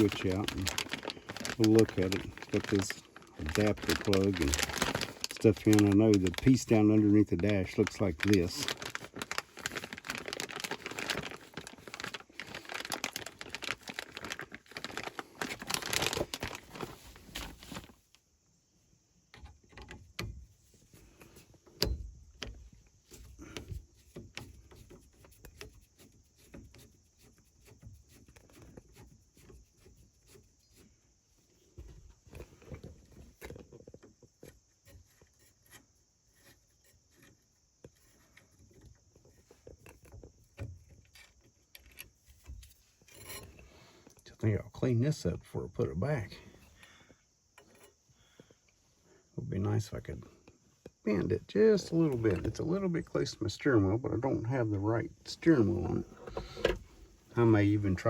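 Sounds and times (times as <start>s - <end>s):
rustling crinkling handling noise: 0.0s - 18.3s, 49.8s - 58.0s.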